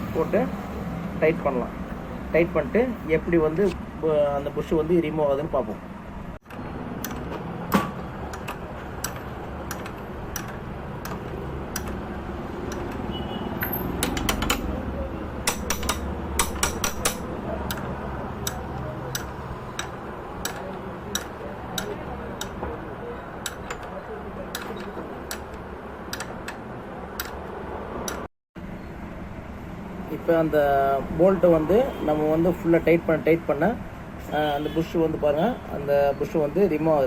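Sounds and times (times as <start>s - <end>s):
ratchet wrench clicking: 13.6s - 14.7s, 15.4s - 22.6s.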